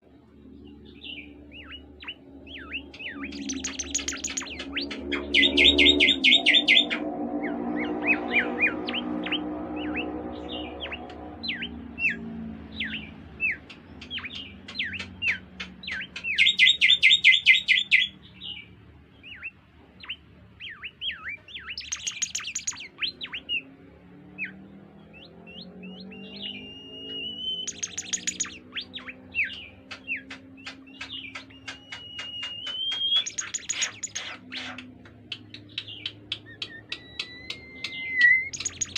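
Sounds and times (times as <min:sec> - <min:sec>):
songbird whistling song: 0:00.5 - 0:38.9
fast buzzy bird trill: 0:01.2 - 0:12.2, 0:12.8 - 0:18.1, 0:21.6 - 0:23.6, 0:25.4 - 0:34.8, 0:36.0 - 0:38.9.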